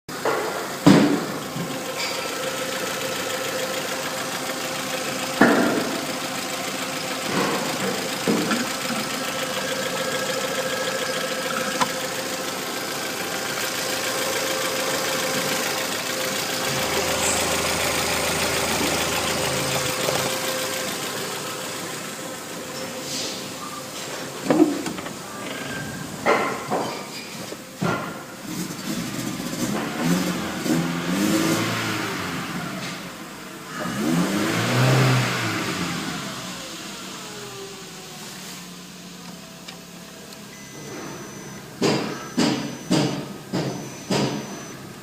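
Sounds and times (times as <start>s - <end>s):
car engine idling: 0.1s - 45.0s
short engine knocks: 41.0s - 44.7s.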